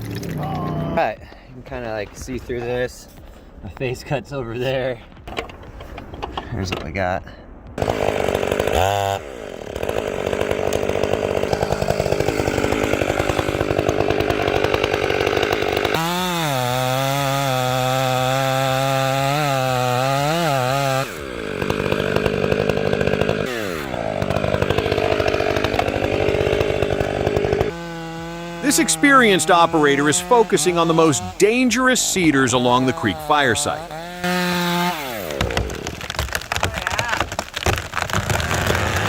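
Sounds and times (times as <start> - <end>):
chainsaw cutting at high throttle: 7.8 - 39.0.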